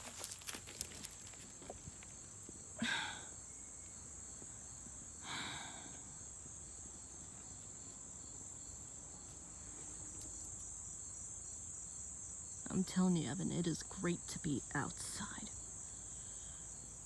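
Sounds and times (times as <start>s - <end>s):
crickets chorus: 0.0s - 17.0s.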